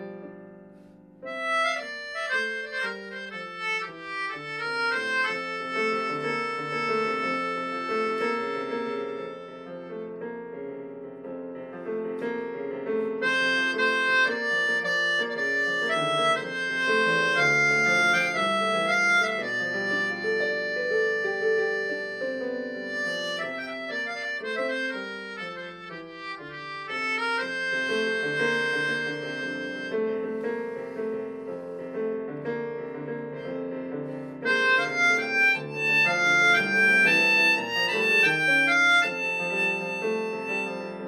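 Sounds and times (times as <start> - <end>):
harmonica melody: 1.2 - 10.2, 13.0 - 41.0.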